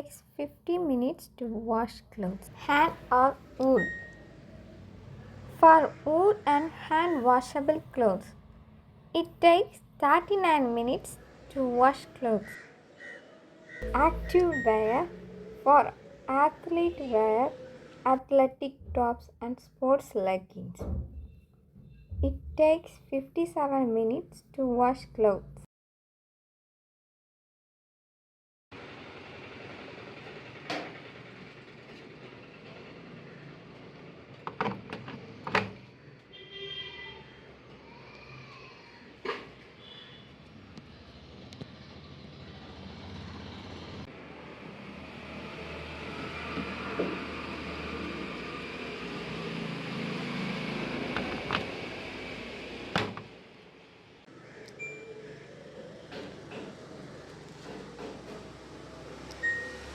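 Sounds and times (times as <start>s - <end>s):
short electronic beep: 3.8s - 4.2s, 13.8s - 15.2s.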